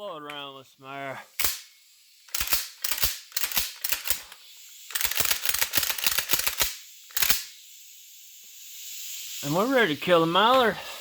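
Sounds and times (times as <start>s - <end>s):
compressed air blasts: 1.2s - 11.0s.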